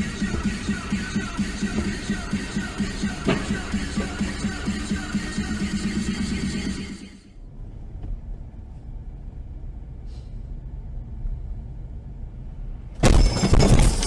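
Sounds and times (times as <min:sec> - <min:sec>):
music: 0:00.0 - 0:07.3
car engine and road noise: 0:00.0 - 0:14.0.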